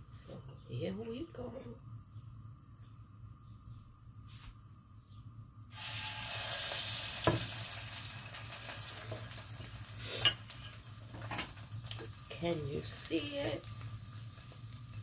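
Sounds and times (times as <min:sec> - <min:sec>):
bread sizzling in a pan: 0:05.7 - 0:15.0.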